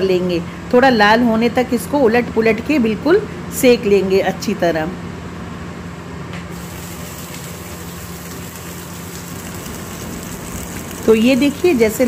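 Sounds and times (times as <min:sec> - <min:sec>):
gourd pieces sizzling in hot ghee: 0:06.5 - 0:12.0.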